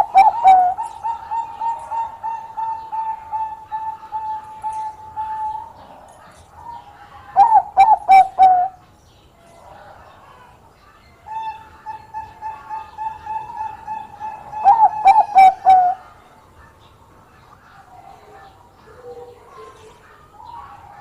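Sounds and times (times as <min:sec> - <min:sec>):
dove cooing: 0:00.0 - 0:08.8, 0:11.3 - 0:16.2.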